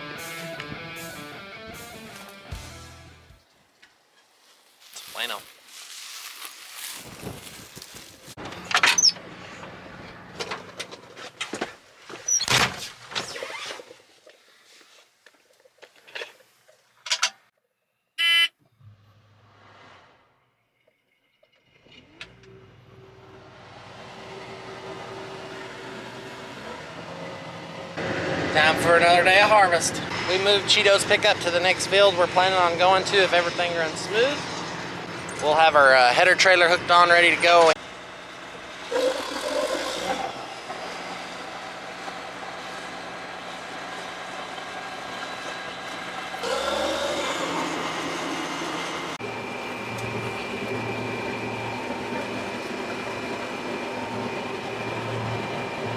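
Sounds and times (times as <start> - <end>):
diesel engine starting: 8.3 - 11.6, 18.8 - 55.9.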